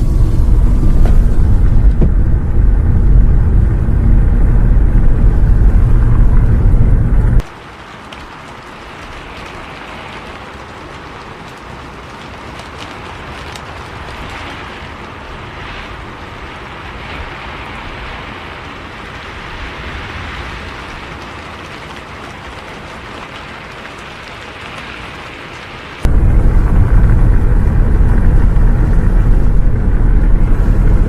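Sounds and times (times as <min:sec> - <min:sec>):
moving bus rumble: 0:00.0 - 0:07.4, 0:26.0 - 0:31.0
raindrops ticking: 0:00.0 - 0:16.4, 0:18.6 - 0:31.0
rain hissing: 0:00.0 - 0:31.0.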